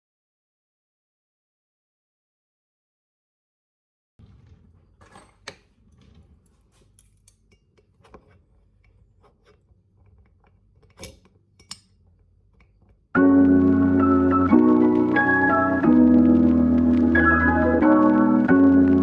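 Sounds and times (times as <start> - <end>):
kitchen clicks and scrapes: 4.9 - 13.1
organ-like keyboard music: 13.1 - 19.0.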